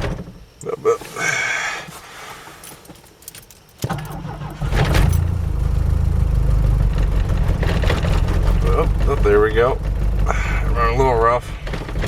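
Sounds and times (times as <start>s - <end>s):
engine starter cranking: 3.8s - 5.8s, 6.4s - 12.0s
car engine running roughly: 5.6s - 12.0s.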